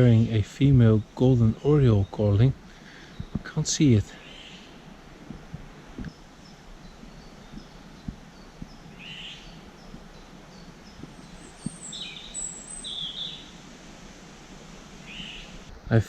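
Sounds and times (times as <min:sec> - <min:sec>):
faint high bird chirps: 0:06.1 - 0:13.6, 0:15.0 - 0:15.7.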